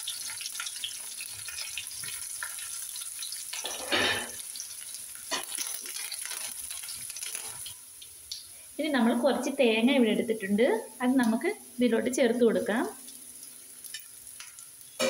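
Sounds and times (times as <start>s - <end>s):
food sizzling in hot oil: 0.0s - 15.0s
steel ladle scraping a wok: 3.6s - 4.4s.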